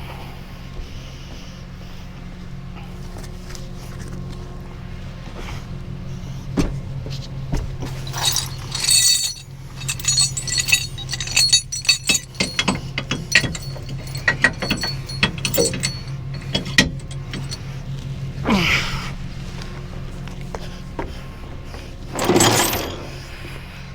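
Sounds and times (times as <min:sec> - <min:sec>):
chains clanking and jingling: 0:08.0 - 0:17.6, 0:22.1 - 0:23.1.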